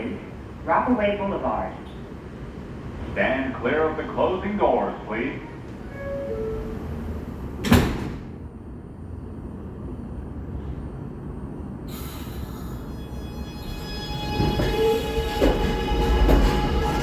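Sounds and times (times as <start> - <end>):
train low rumble: 0.0 - 17.0
train doors shutting with thud: 5.4 - 8.5, 13.6 - 17.0
hiss: 11.9 - 12.8.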